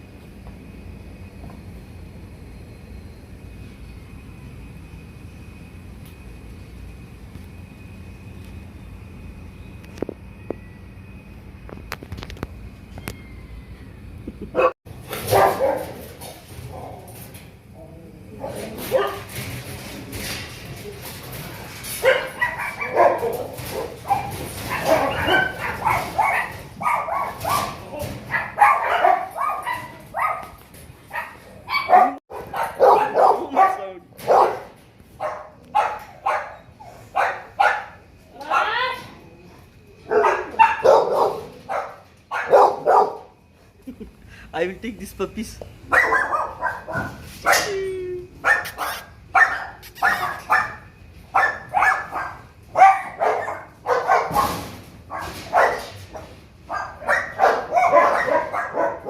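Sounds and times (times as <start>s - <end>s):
puppies yapping: 22.0s - 38.8s, 40.1s - 43.3s, 45.9s - 47.7s, 48.4s - 56.0s, 56.7s - 59.0s.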